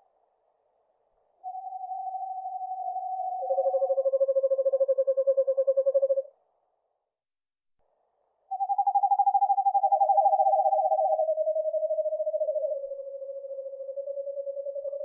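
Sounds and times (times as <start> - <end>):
owl trilling: 1.4 - 6.3, 8.5 - 15.0.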